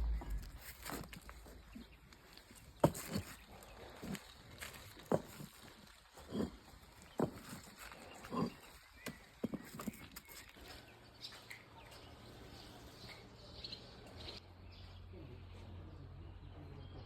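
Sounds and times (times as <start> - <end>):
low steady hum: 0.0 - 1.5.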